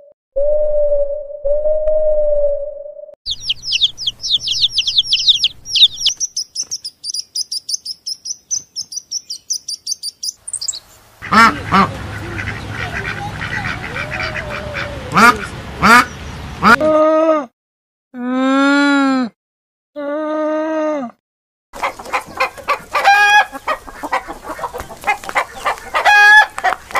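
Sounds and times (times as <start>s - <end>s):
small bird twittering: 3.3s - 11.0s
background noise: 3.4s - 17.0s
duck quacking: 11.2s - 16.9s, 21.8s - 26.8s.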